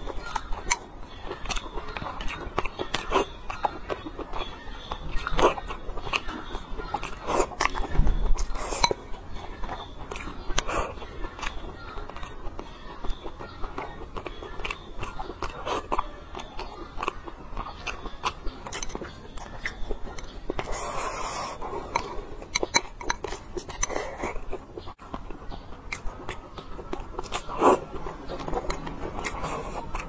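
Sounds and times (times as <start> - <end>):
chewing rice: 0.0 - 30.0.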